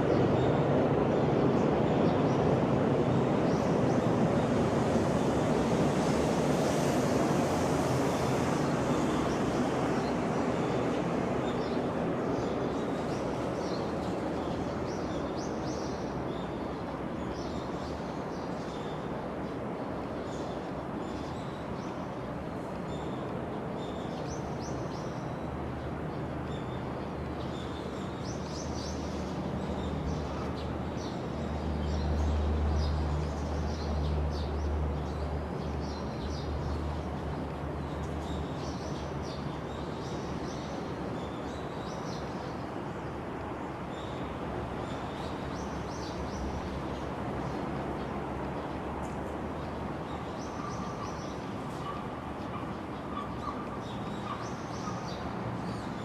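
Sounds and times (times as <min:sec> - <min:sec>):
small birds chirping: 0:48.6 - 0:56.0.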